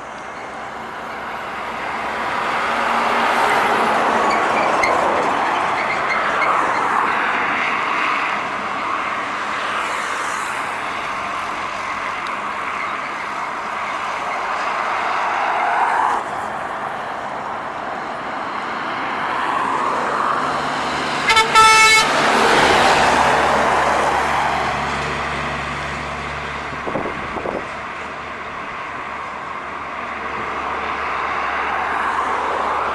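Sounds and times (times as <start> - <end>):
trucks passing on highway: 0.0 - 32.9
truck horn blasts: 21.2 - 22.4.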